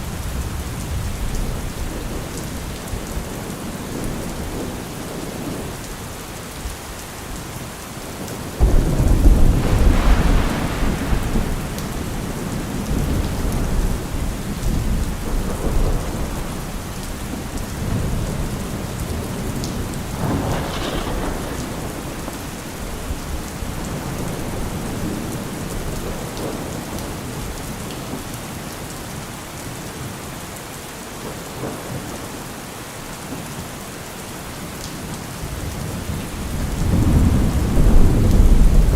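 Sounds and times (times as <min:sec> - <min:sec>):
steady rain: 0:00.0 - 0:38.9
thunder rumbling: 0:08.2 - 0:27.5, 0:35.4 - 0:38.9.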